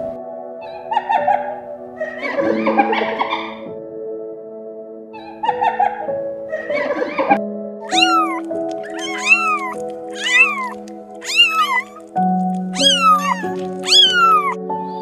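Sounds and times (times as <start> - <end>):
background music: 0.0 - 15.0
kittens mewing: 7.9 - 14.7.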